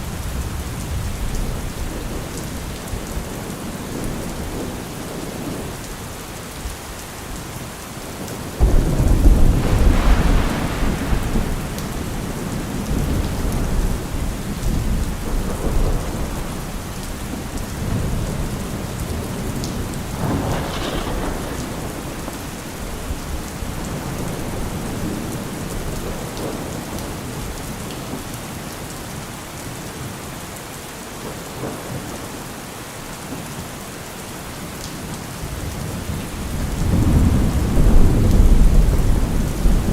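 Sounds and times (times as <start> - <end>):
heavy rain: 0.0 - 39.9
thunder rolling: 8.6 - 26.6, 35.6 - 39.9.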